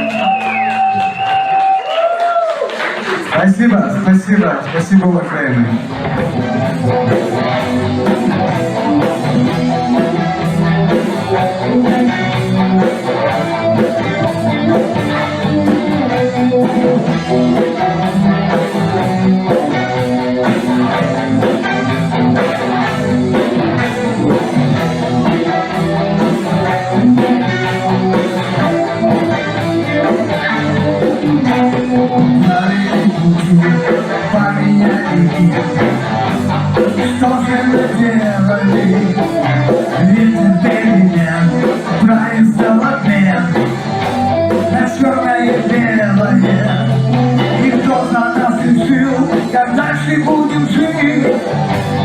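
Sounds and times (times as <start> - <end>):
bass guitar: 0.0 - 52.0
electric guitar: 0.0 - 52.0.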